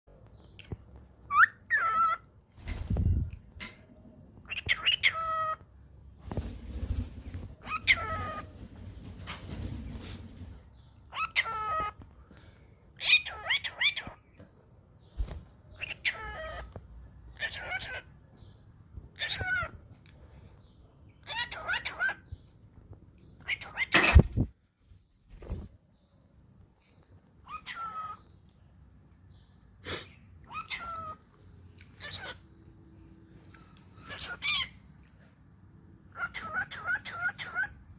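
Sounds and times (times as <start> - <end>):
cockatiels chirping: 4.5 - 5.6, 7.6 - 8.5, 11.1 - 12.0, 15.8 - 16.7, 21.2 - 22.3, 30.5 - 31.2, 31.9 - 32.4, 34.0 - 34.8, 36.2 - 37.8.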